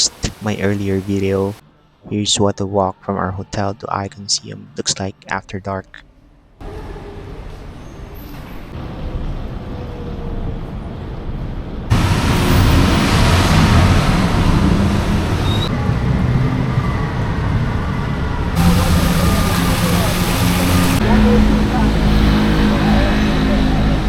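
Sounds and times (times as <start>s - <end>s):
passing vehicles rumble and hiss: 7.2s - 24.0s.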